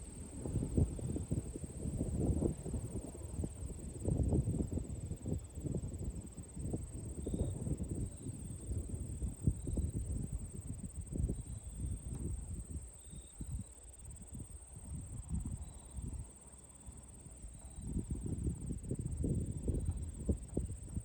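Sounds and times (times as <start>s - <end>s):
wind gusting over microphone: 0.0s - 12.8s
high insect trill: 0.0s - 20.8s.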